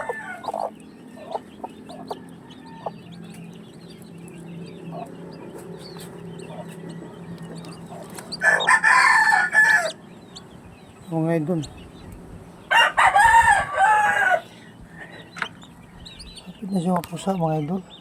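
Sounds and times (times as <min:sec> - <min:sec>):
rooster crowing: 0:00.0 - 0:00.7, 0:02.0 - 0:03.4, 0:08.4 - 0:10.0, 0:12.7 - 0:14.6
low steady hum: 0:00.0 - 0:16.8
chickens clucking: 0:00.0 - 0:17.9.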